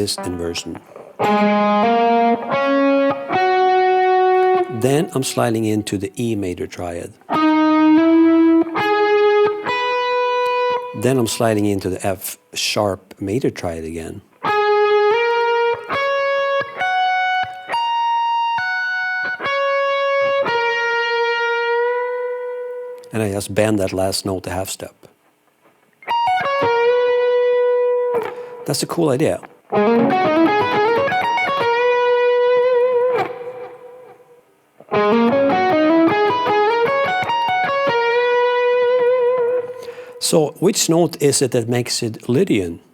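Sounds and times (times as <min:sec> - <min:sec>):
clean electric guitar arpeggio: 0:00.0 - 0:04.8, 0:07.3 - 0:11.0, 0:14.4 - 0:23.0, 0:26.0 - 0:28.6, 0:29.7 - 0:39.9.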